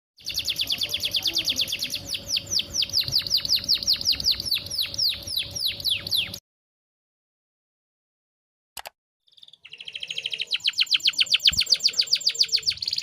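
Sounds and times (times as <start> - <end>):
canary chirping: 0.2 - 6.4, 9.3 - 13.0.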